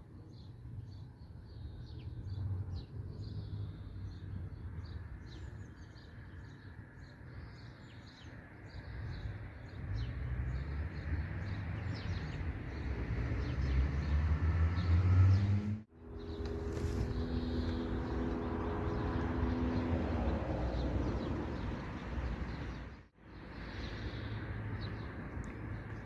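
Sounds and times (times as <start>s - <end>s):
birds chirping: 5.2s - 26.0s.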